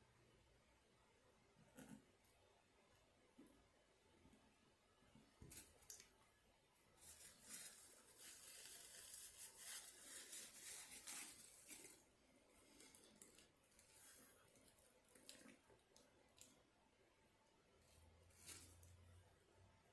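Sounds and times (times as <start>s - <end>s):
paper crinkling: 7.0s - 15.6s.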